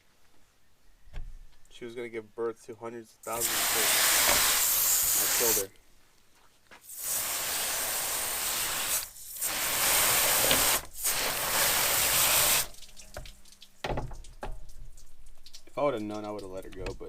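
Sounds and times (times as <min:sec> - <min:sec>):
water spraying in hissing bursts: 0:03.2 - 0:05.8, 0:06.8 - 0:16.8.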